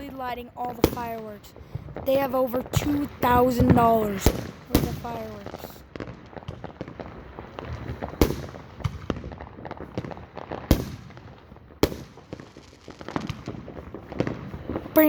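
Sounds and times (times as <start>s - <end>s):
fireworks booms: 0.0s - 15.0s
fireworks crackling pops: 0.0s - 15.0s.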